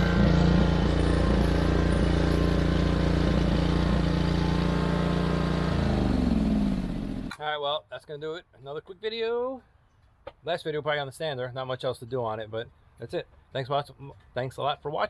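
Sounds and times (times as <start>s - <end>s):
mower engine running: 0.0s - 7.4s.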